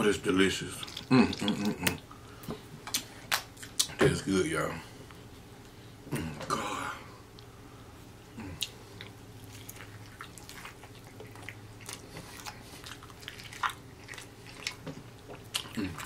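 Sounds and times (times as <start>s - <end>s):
faint low hum: 0.0s - 16.0s
crunchy chewing: 8.4s - 16.0s.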